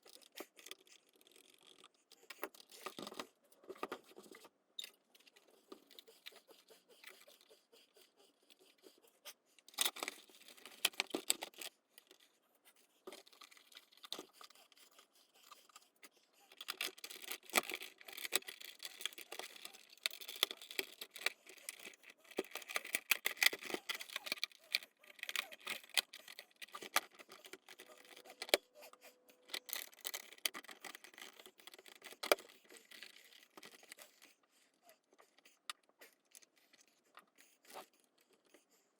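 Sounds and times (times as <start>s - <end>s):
plastic parts clicking and knocking: 0.0s - 6.4s, 9.6s - 12.3s, 13.0s - 14.5s, 16.5s - 28.6s, 29.5s - 34.3s.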